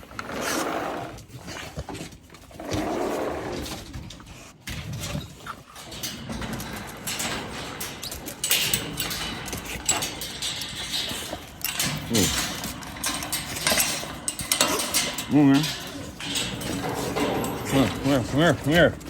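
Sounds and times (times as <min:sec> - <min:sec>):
dogs eating: 0:00.0 - 0:19.0
clicks and knocks: 0:05.8 - 0:19.0.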